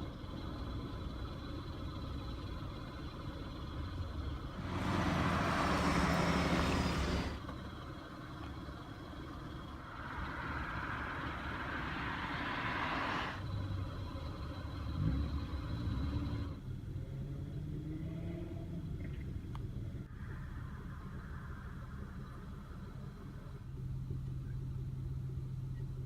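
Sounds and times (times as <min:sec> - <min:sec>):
low traffic rumble: 0:00.0 - 0:26.0
car passing with tyre whoosh: 0:04.6 - 0:07.5, 0:09.7 - 0:13.7
car tyre hiss: 0:04.6 - 0:07.6, 0:09.8 - 0:13.4.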